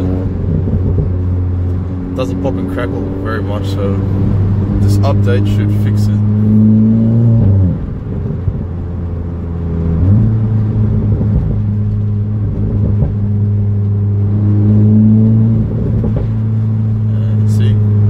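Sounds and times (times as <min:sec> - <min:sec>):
car engine while driving: 0:00.0 - 0:18.0.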